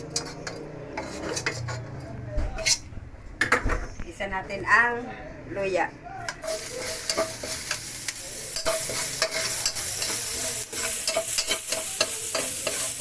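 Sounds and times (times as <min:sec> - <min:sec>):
metal spatula scraping a wok: 0:00.0 - 0:02.0, 0:06.4 - 0:07.9, 0:08.5 - 0:13.0
ginger sizzling in hot oil: 0:06.4 - 0:13.0.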